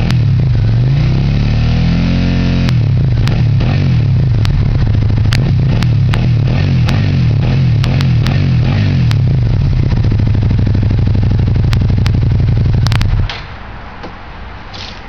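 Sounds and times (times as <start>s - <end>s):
sharp exhaust cracks: 2.0s - 15.0s
motorcycle engine idling: 2.7s - 13.4s.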